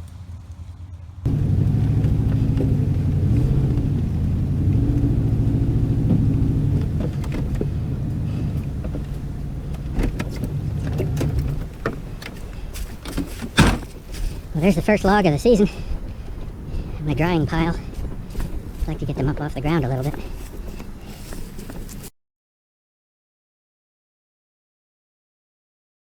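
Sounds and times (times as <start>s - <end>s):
truck engine revving: 0.0s - 22.1s
sharp knocks: 12.8s - 14.0s.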